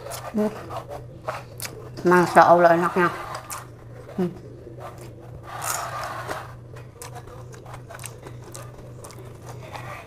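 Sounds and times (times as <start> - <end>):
steady low hum: 0.0 - 10.0
person chewing with mouth clicks: 6.9 - 10.0.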